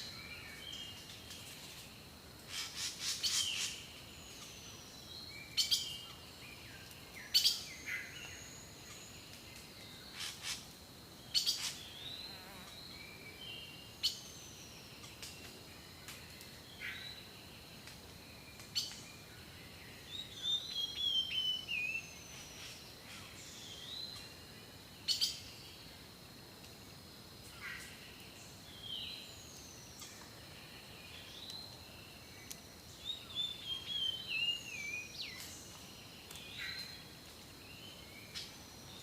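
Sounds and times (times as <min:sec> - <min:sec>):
birds singing and calling: 0:02.5 - 0:15.6, 0:18.5 - 0:24.3, 0:27.6 - 0:37.1.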